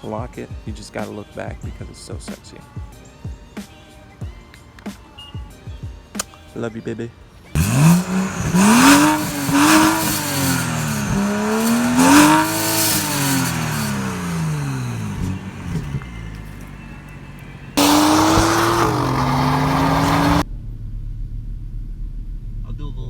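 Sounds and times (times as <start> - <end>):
car engine revving: 7.3 - 20.4.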